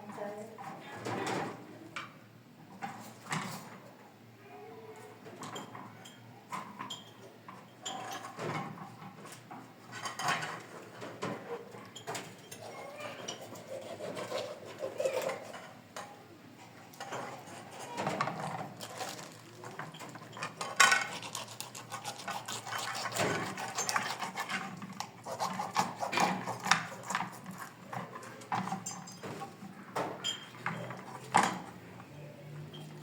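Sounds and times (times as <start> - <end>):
dishes and pots clattering: 5.4 - 13.6, 26.1 - 31.8.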